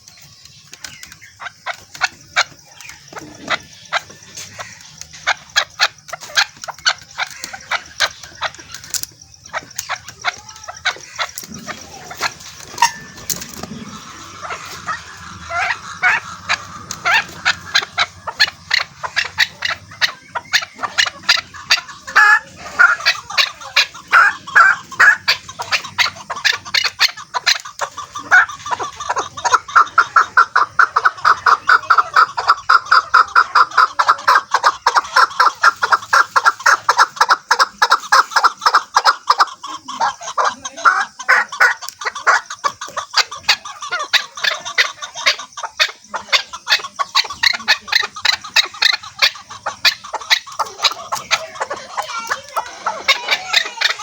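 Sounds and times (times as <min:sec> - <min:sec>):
partridge clucking calls: 0:00.0 - 0:54.0.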